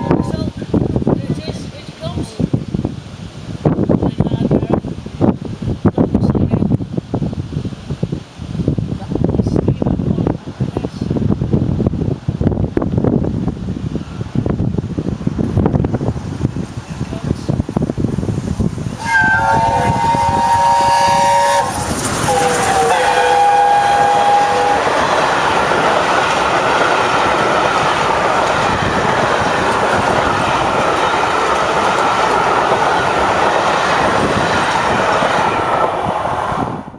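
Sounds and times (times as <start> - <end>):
train running by at speed: 0.0 - 36.9
steam locomotive chime whistle: 19.0 - 24.9.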